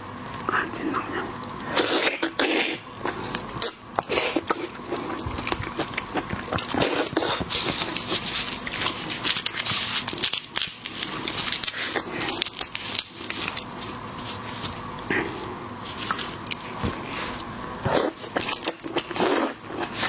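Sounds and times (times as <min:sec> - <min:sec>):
chewing and crunching seafood: 0:01.3 - 0:20.0.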